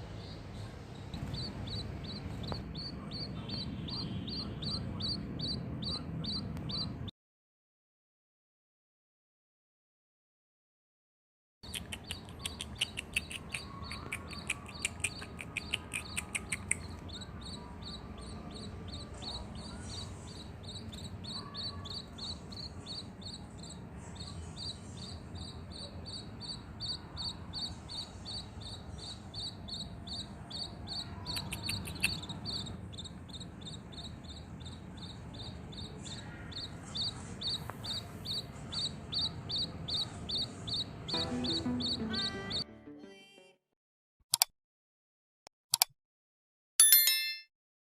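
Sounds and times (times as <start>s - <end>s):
high-pitched chirps: 41.1s - 42.7s.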